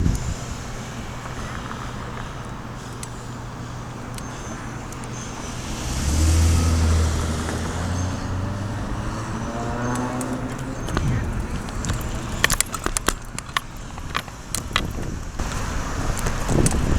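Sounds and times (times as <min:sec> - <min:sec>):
city street traffic: 0:00.0 - 0:16.9
motor vehicle passing close: 0:03.9 - 0:13.7.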